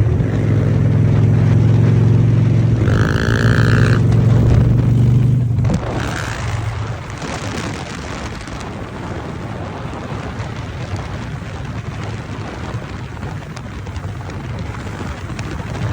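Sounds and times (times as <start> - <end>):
low rumble: 0.0 - 12.4
road and wind noise: 0.0 - 15.9.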